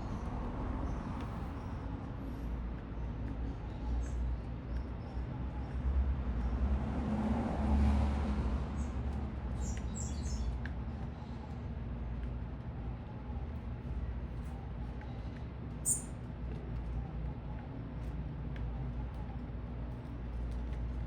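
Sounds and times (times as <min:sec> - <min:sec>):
small birds chirping: 0:00.0 - 0:06.7, 0:08.8 - 0:21.0
low rumble of city traffic: 0:00.0 - 0:21.0
vehicle passing: 0:06.0 - 0:10.4.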